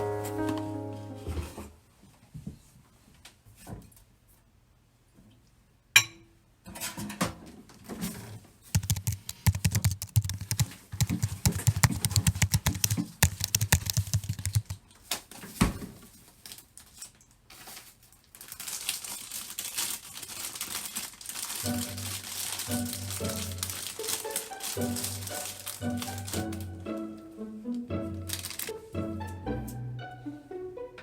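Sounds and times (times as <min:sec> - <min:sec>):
sharp clicks: 0:08.8 - 0:14.8.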